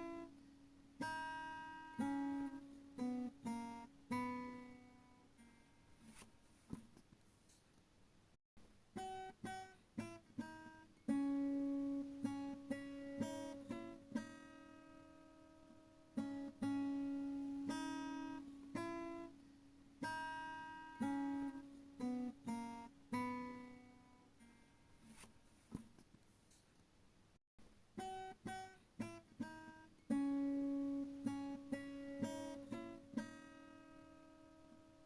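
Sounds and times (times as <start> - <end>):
acoustic guitar picking: 0.0 - 6.3, 9.0 - 19.4, 20.0 - 25.3, 28.0 - 35.0.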